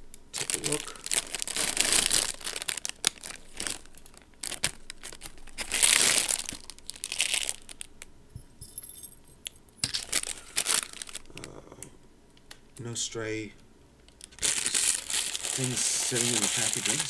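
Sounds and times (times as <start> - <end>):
packaging crinkling and rustling: 0.3 - 8.0, 9.8 - 11.5, 14.1 - 17.0.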